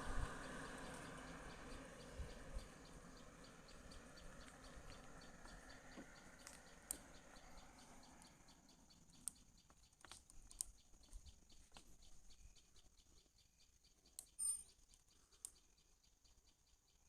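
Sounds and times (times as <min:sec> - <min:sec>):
soft high ticking: 0:00.0 - 0:12.8
faint clicks: 0:03.7 - 0:12.1.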